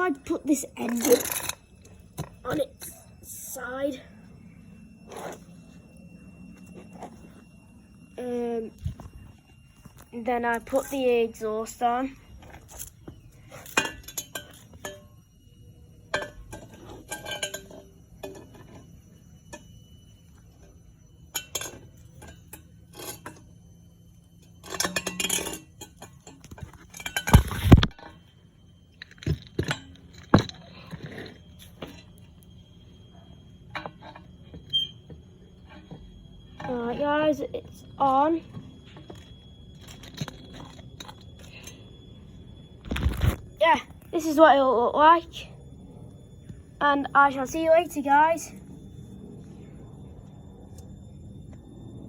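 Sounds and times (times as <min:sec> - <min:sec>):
metal parts clinking and scraping: 0:00.1 - 0:03.6, 0:08.7 - 0:15.2, 0:16.1 - 0:18.9, 0:21.3 - 0:23.5, 0:24.4 - 0:28.3, 0:28.9 - 0:32.5, 0:33.6 - 0:43.5
metal clatter: 0:12.6 - 0:15.2, 0:16.1 - 0:18.9, 0:24.5 - 0:28.2, 0:28.9 - 0:32.2.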